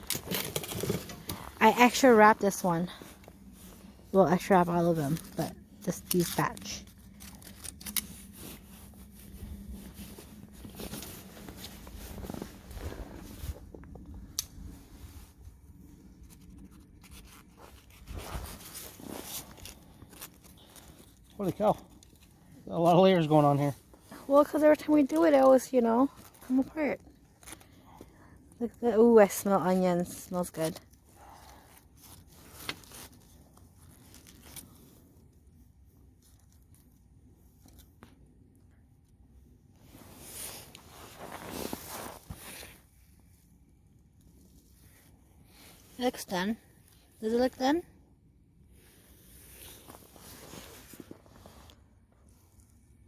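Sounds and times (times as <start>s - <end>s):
foil packet rustling and crinkling: 0.0s - 2.1s, 4.4s - 12.6s, 32.0s - 35.0s
foil crinkling and tearing: 5.1s - 9.4s.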